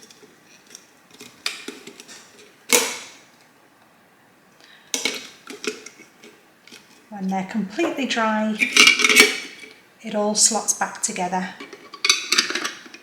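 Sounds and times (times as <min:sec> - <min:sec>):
plastic parts knocking and clicking: 0:04.9 - 0:06.0, 0:11.6 - 0:13.0.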